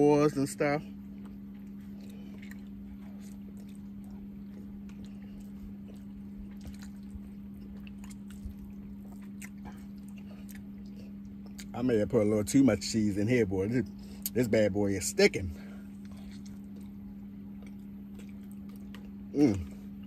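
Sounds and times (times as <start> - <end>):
steady low hum: 0.0 - 20.0
man chewing: 0.9 - 12.0, 15.6 - 20.0.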